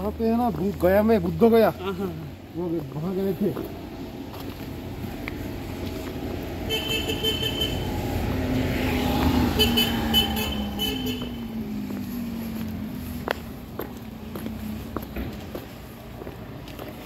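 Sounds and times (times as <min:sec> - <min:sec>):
passing engine: 0:00.0 - 0:17.0
vehicle horn toots: 0:06.7 - 0:08.0, 0:09.5 - 0:11.5.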